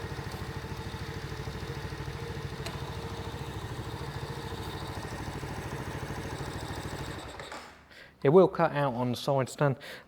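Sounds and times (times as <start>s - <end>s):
motorcycle engine idling: 0.0s - 7.4s.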